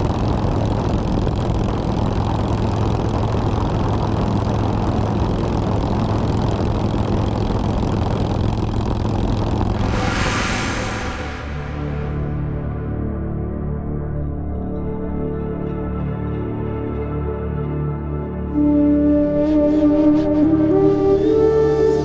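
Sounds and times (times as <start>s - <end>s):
road and wind noise: 9.4s - 12.5s.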